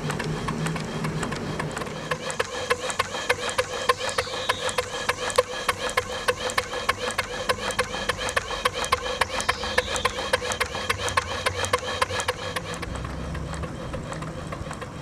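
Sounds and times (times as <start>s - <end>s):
steam engine exhaust beats: 0.0s - 15.0s.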